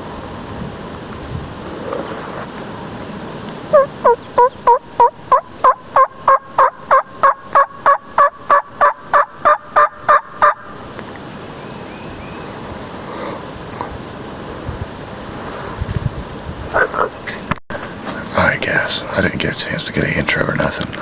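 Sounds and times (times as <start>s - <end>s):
turkey yelps: 3.7s - 10.8s.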